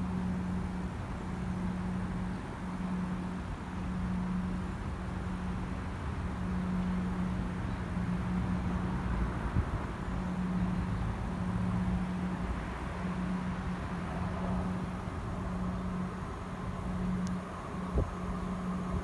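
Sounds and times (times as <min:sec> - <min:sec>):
distant train engine hum: 0:00.0 - 0:19.0.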